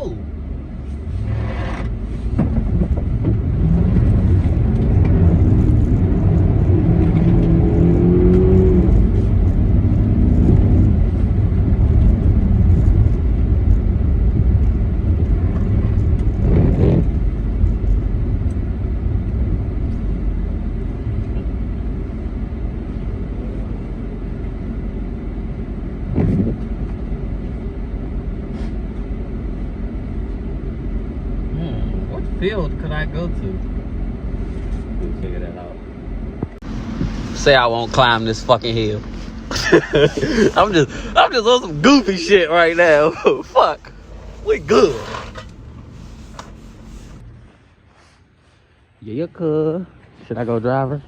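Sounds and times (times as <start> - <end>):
engine revving: 1.0 - 18.7, 36.6 - 47.2.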